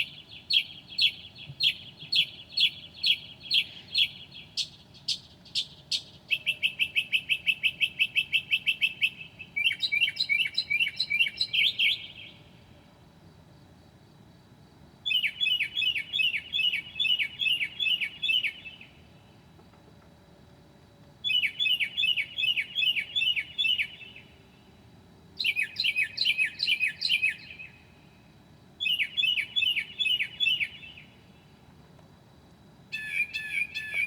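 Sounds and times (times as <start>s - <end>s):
mockingbird singing: 0.0s - 12.4s, 21.2s - 24.2s, 25.4s - 27.8s, 32.9s - 34.0s.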